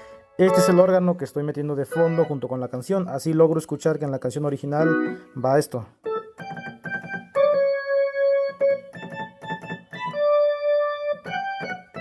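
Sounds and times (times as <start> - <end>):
rhythmic low keyboard notes: 0.0 - 2.5, 4.7 - 12.0
organ sound: 0.0 - 2.9, 4.4 - 12.0
keyboard long held notes: 1.9 - 2.4, 6.1 - 12.0.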